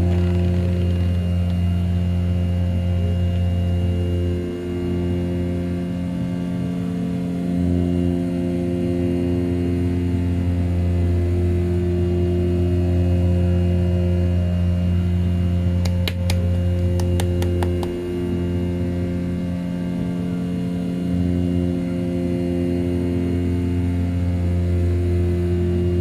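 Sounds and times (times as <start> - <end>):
sharp clicks: 15.8 - 18.0.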